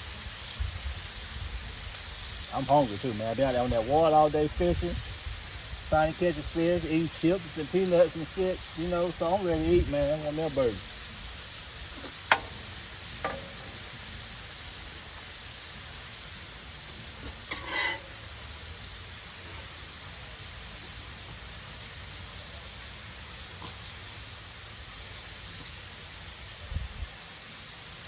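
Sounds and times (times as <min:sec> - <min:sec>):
burger patties sizzling: 0:00.0 - 0:28.0.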